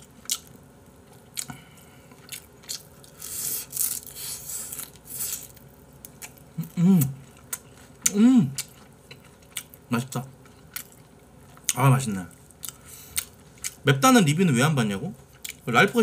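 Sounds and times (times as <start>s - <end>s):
person chewing crunchy fried food: 0.0s - 13.9s, 15.2s - 15.7s
person humming: 8.1s - 8.6s.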